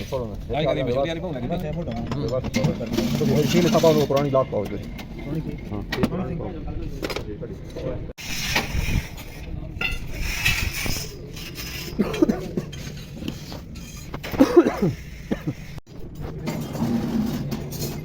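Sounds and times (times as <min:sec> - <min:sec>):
metal tools clinking: 0:01.8 - 0:05.9, 0:08.2 - 0:18.0.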